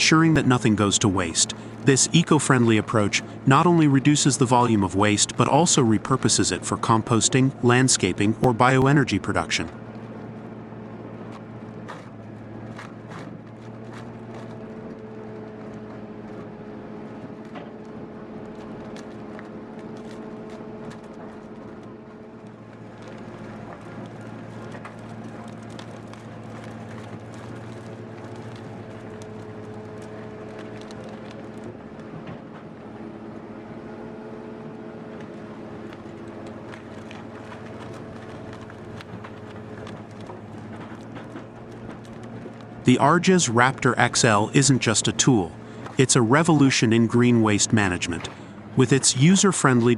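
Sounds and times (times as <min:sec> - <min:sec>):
wood chipper engine drone: 0:00.0 - 0:49.9
branches cracking and snapping: 0:11.2 - 0:33.2, 0:33.9 - 0:42.9.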